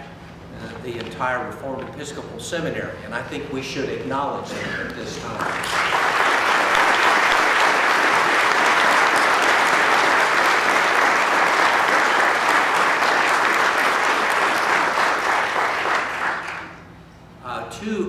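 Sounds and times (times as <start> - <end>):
congregation applauding: 5.4 - 17.0.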